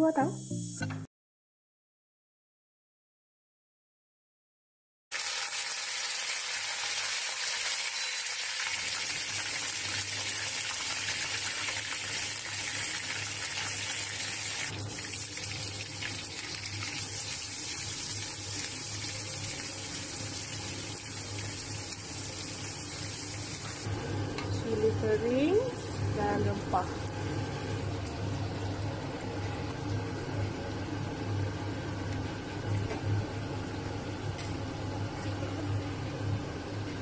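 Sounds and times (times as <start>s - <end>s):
spices sizzling in hot oil: 5.1s - 23.9s.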